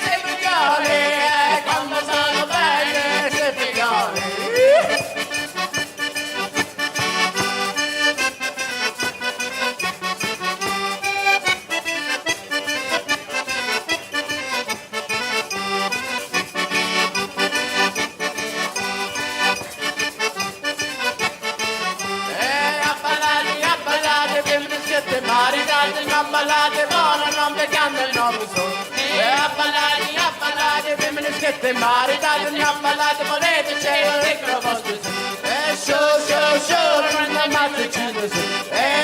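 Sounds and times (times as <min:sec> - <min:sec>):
accordion playing folk tune: 0:00.0 - 0:39.0.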